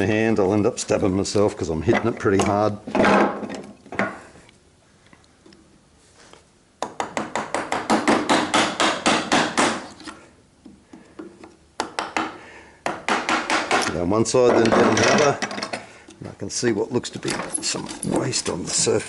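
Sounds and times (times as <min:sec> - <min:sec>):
wood chisel being struck: 0:06.8 - 0:09.9, 0:11.8 - 0:14.8.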